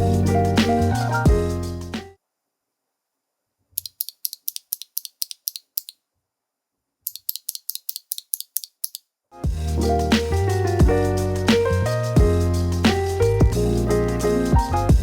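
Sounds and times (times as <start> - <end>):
mechanical keyboard clicking: 3.8 - 6.0, 7.1 - 9.0.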